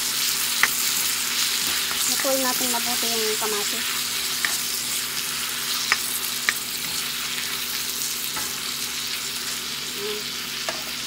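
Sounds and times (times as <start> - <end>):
vegetables sizzling in oil: 0.0 - 11.0
spatula clicking against pan: 0.6 - 0.8, 5.9 - 6.6.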